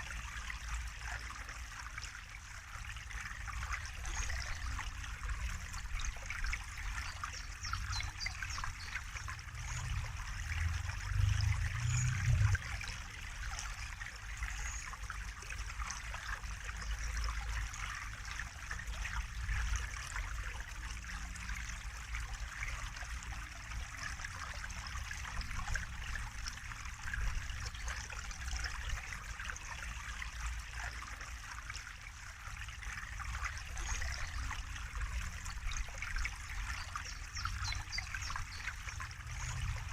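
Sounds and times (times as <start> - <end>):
water trickling and splashing: 0.0 - 39.9
low rumble: 9.5 - 12.8.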